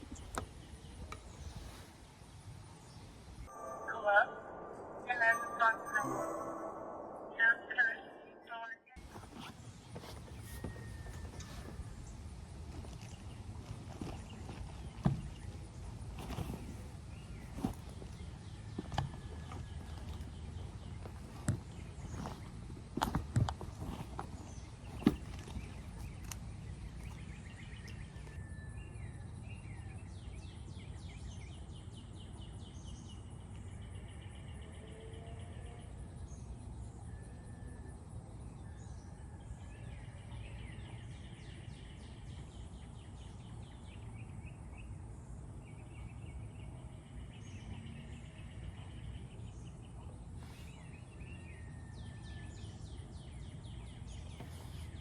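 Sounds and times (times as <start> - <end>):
low rumble: 3.5 - 8.5
small birds chirping: 9.0 - 35.2, 39.8 - 55.0.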